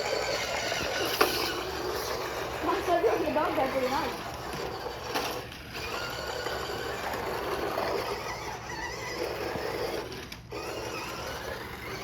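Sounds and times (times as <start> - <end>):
toy car electric motors whining: 0.0 - 12.0.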